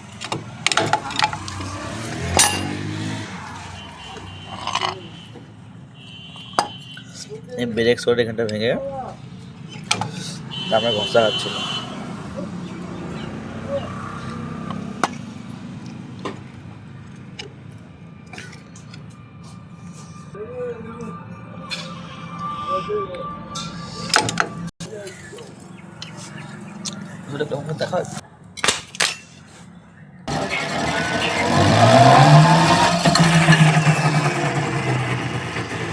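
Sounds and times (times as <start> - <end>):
wheel clicking: 30.3 - 35.9.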